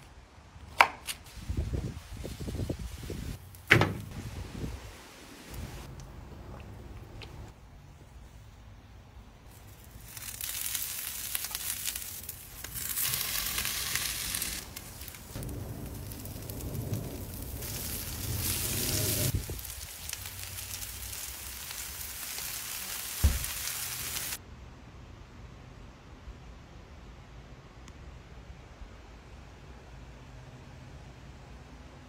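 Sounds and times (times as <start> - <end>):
potatoes sizzling on a griddle: 9.5 - 24.4
sharp thump: 23.2 - 23.5.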